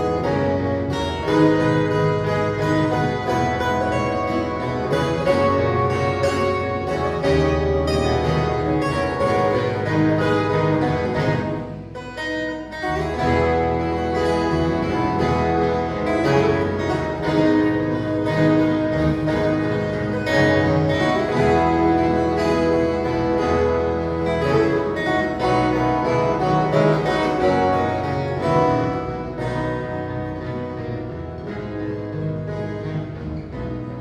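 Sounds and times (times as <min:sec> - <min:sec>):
folk guitar ensemble playing: 0:00.0 - 0:34.0.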